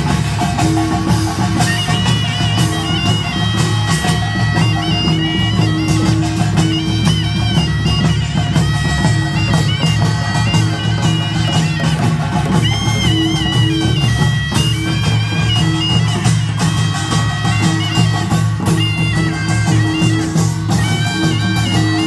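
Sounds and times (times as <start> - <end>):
barrel drums: 0.0 - 22.0
shawm melody: 0.0 - 22.0.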